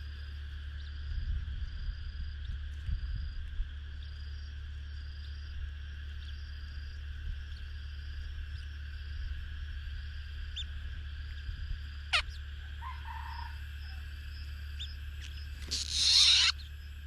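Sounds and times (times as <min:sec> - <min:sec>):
steady low hum: 0:00.0 - 0:17.0
bird chirps: 0:14.7 - 0:17.0
bird call sliding downward: 0:15.6 - 0:16.6.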